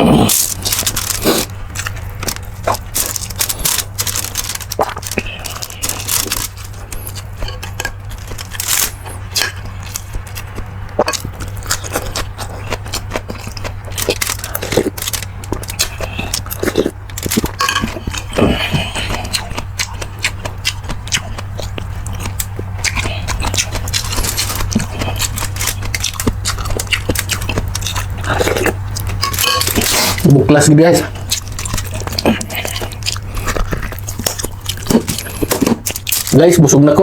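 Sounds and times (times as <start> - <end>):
chewing: 0.0 - 30.4, 31.0 - 36.8
steady low hum: 0.0 - 37.0
utensils scraping and clinking on bowl: 0.3 - 10.4, 14.0 - 19.2, 23.8 - 30.3.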